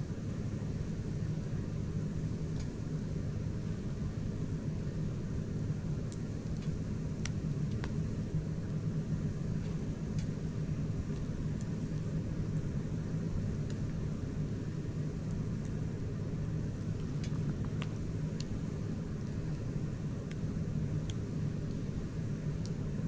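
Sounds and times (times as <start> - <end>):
campfire flames rumbling: 0.0 - 23.0
fire crackling and popping: 0.0 - 23.0.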